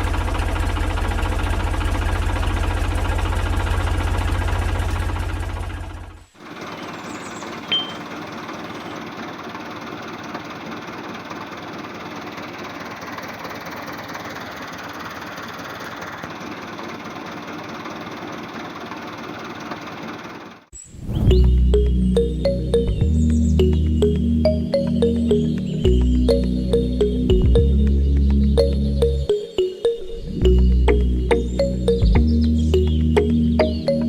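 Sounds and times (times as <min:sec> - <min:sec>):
small machine rattling: 0:00.0 - 0:20.7
music: 0:21.3 - 0:34.0.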